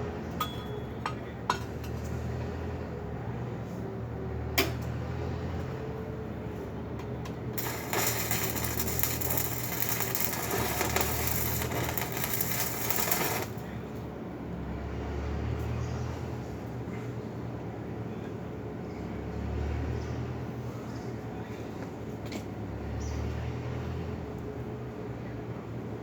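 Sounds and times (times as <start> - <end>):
low hum: 7.6 - 13.6
welding arc crackling: 7.6 - 13.7.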